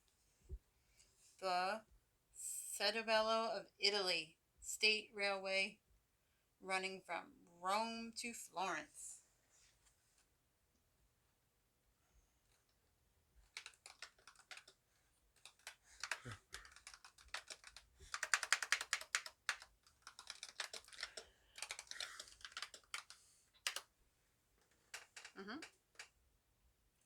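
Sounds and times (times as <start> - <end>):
typing on computer keyboard: 13.4 - 23.9, 24.6 - 26.2.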